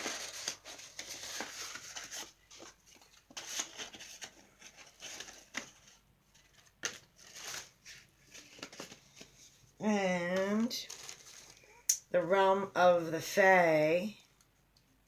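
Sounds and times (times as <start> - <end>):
paper cards rustling and tapping: 0.0 - 9.6.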